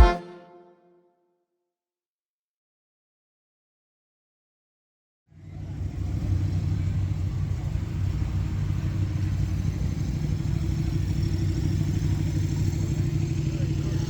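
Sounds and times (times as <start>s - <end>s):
car engine rumbling: 5.4s - 14.0s.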